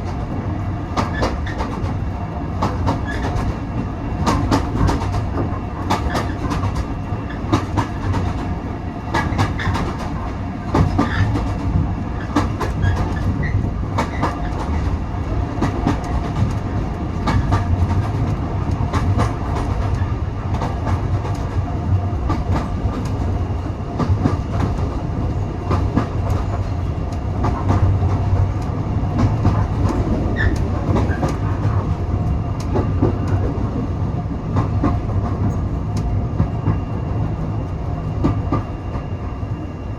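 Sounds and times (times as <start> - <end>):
railway coach rumble: 0.0 - 39.9.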